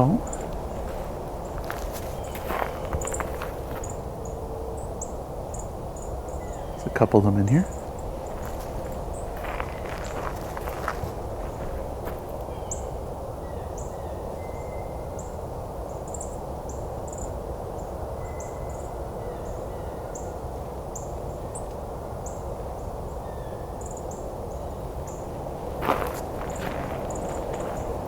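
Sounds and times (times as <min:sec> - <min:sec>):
distant highway traffic hum: 0:00.0 - 0:28.0
songbird high thin calls: 0:01.5 - 0:04.4.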